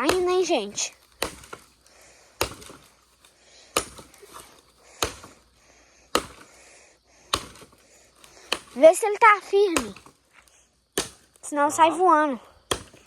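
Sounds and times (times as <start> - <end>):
axe chopping wood: 0.0 - 1.8, 2.4 - 5.4, 6.1 - 6.6, 7.2 - 10.2, 10.9 - 11.4, 12.6 - 13.0.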